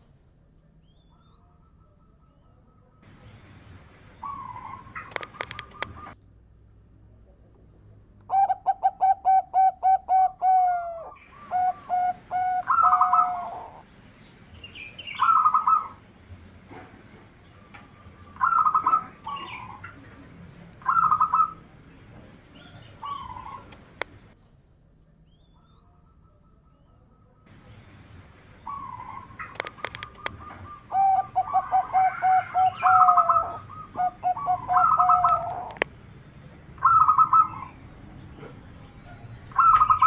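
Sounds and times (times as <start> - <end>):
dove cooing: 3.1 - 6.2, 8.3 - 13.9, 15.0 - 16.0, 17.5 - 24.4, 28.4 - 35.9, 36.8 - 37.8, 39.1 - 40.0.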